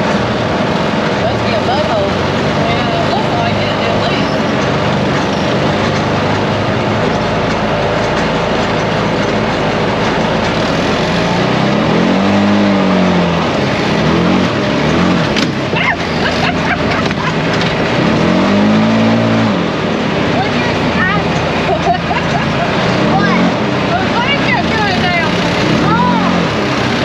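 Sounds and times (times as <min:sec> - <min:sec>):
atv engine revving: 0:00.0 - 0:27.0
heavy rushing noise: 0:00.0 - 0:27.0
sharp knocks: 0:13.3 - 0:18.8.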